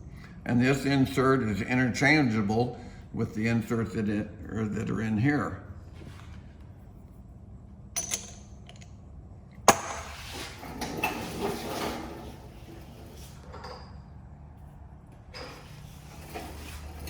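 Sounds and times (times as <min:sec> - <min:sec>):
metal parts rattling and scraping: 0:09.9 - 0:14.0, 0:15.4 - 0:17.0.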